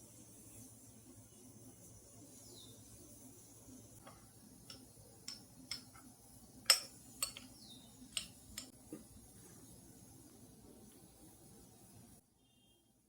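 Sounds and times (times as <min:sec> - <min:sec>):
tableware clicking and tapping: 0:04.0 - 0:08.8.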